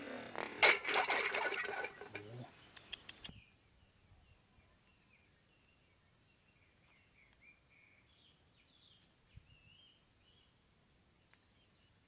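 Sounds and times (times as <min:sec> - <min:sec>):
faint bird chirps: 0:02.4 - 0:12.0.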